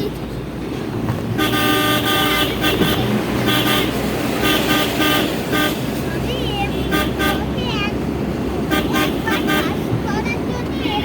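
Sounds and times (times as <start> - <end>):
engine and road rumble: 0.0 - 11.0
vehicle horn honking: 1.4 - 5.9, 6.6 - 7.6, 8.7 - 9.8.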